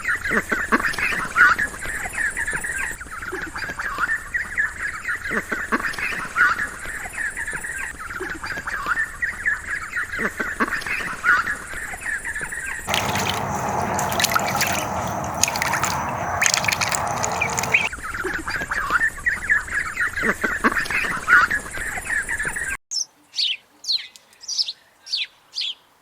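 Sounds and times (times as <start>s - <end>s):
ducks calling: 12.9s - 17.9s
water splashing: 12.9s - 17.9s.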